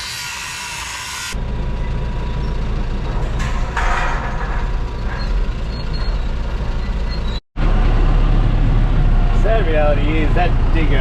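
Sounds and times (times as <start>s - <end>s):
excavator engine rumbling: 1.4s - 11.0s
rattle of shed being pulled down: 2.7s - 7.4s.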